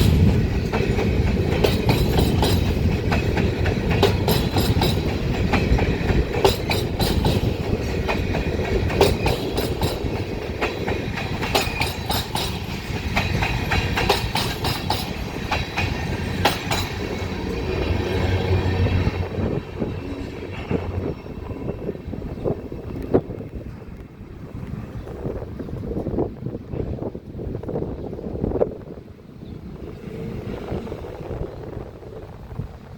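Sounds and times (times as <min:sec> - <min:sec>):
train wheels clacking over rail joints: 0:00.0 - 0:21.1
freight train rumble: 0:00.0 - 0:32.9.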